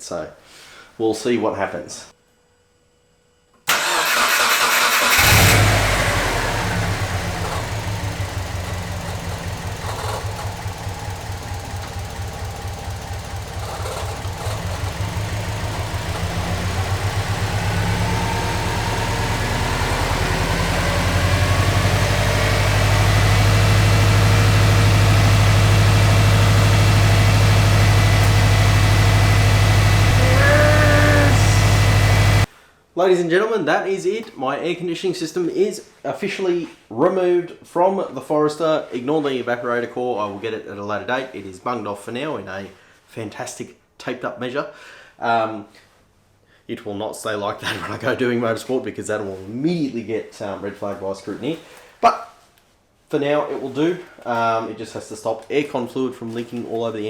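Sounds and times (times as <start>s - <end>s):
car engine cranking and starting: 3.7s - 32.5s
engine running unevenly: 5.2s - 32.5s.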